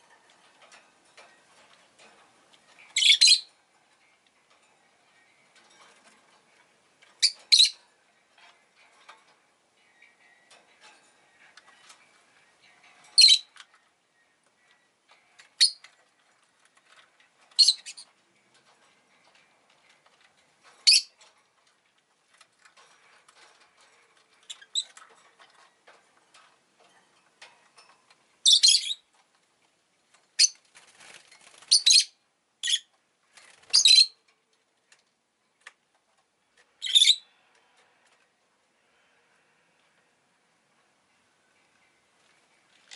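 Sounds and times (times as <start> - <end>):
lovebird chirping: 2.7 - 3.6, 7.2 - 7.8, 12.6 - 13.6, 14.2 - 15.9, 17.5 - 18.1, 20.8 - 21.1, 28.4 - 29.1, 30.4 - 30.6, 31.4 - 32.9, 33.6 - 34.2, 36.8 - 37.3.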